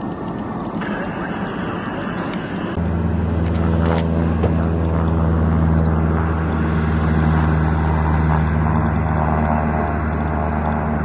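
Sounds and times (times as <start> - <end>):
loud engine drone: 0.0 - 11.0.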